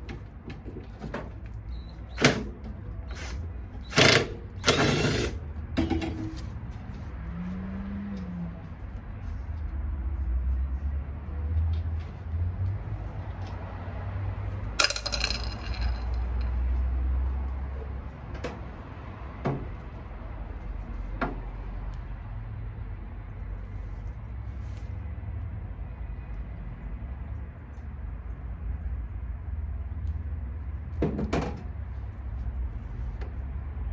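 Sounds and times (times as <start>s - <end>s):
metal tools clinking: 14.8s - 16.6s.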